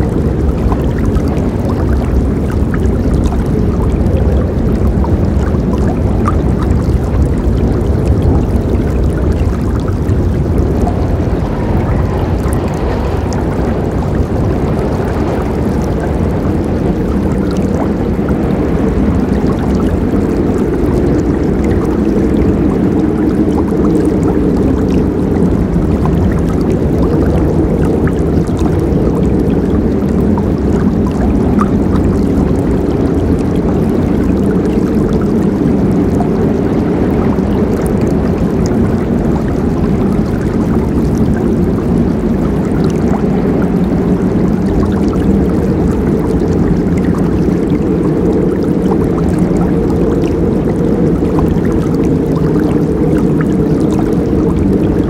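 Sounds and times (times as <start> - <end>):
water splashes and drips: 0.0 - 55.0
river rushing: 5.7 - 22.5.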